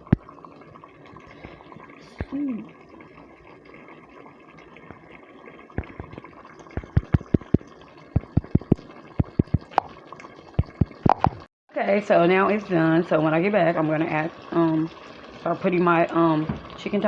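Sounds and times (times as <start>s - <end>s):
low steady simmering hiss: 0.0s - 11.0s, 11.7s - 17.0s
sauce bubbles popping: 0.0s - 11.5s.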